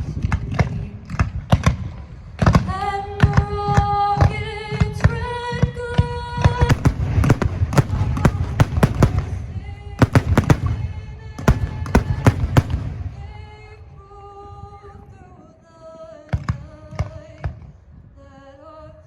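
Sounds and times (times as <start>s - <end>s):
fireworks bangs: 6.5s - 13.9s.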